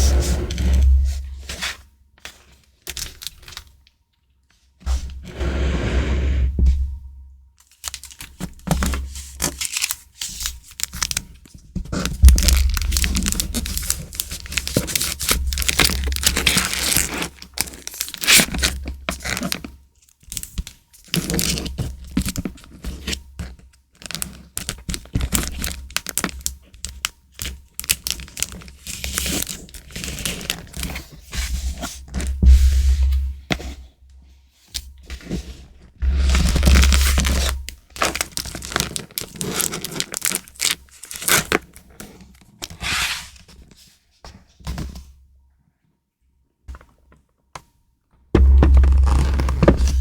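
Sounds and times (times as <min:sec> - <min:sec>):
packaging crinkling and tearing: 0:07.8 - 0:19.6, 0:24.0 - 0:30.9, 0:36.2 - 0:42.4.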